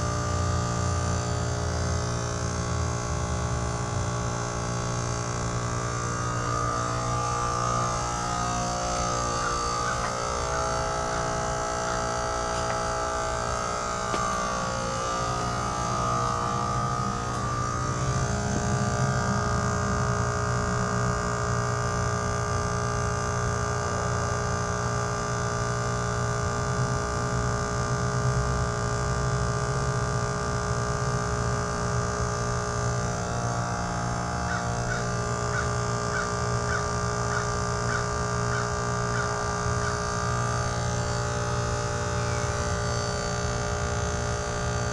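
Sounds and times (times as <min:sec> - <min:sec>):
heat pump compressor hum: 0:00.0 - 0:44.9.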